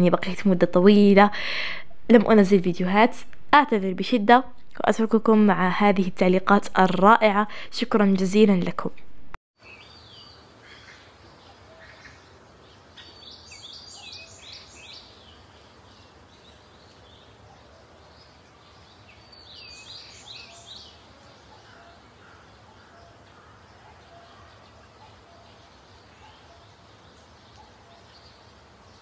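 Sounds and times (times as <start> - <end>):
low steady background noise: 0.0 - 29.0
birdsong: 6.8 - 29.0.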